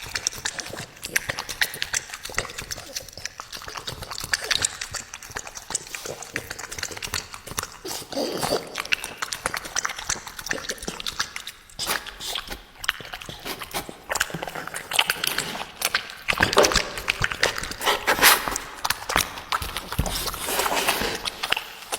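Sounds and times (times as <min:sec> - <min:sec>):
dog chewing and crunching: 0:00.0 - 0:21.9.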